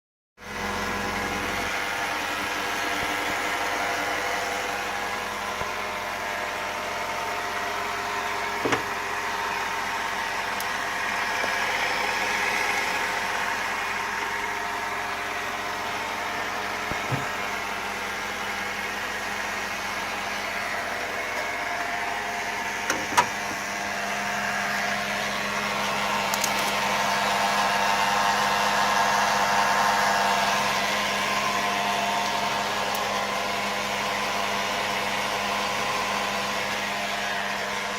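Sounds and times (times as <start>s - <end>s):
car engine idling with rattle: 0.4s - 37.9s.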